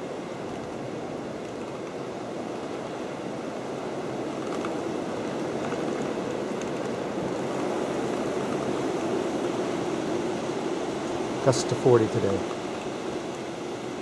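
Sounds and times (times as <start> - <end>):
gusting wind: 0.0 - 14.0.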